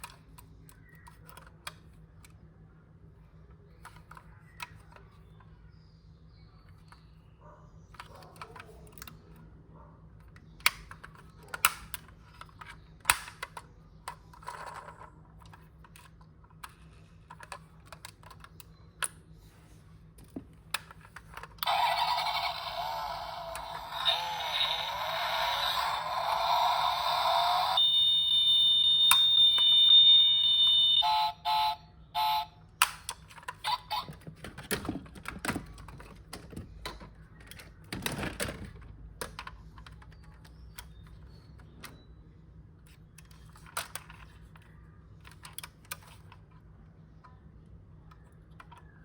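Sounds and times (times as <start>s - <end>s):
plastic toy and packaging clicks: 0.0s - 2.4s, 10.2s - 19.3s, 20.2s - 27.9s, 32.7s - 41.7s, 42.9s - 47.4s
electronic beeps: 21.6s - 32.5s
toy engine sound effect: 21.6s - 32.6s, 33.6s - 34.2s.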